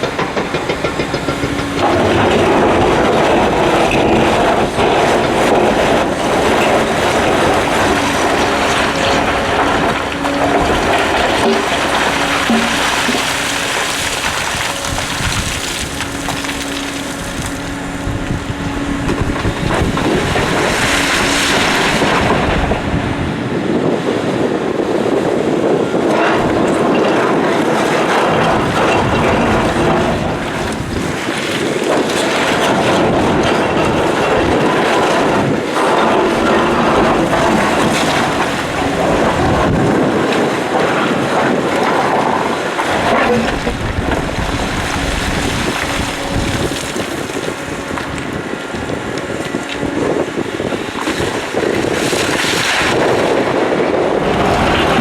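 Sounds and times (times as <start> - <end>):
excavator diesel engine: 0.0 - 55.0
quarry truck engine: 0.0 - 55.0
wind buffeting microphone: 0.0 - 55.0.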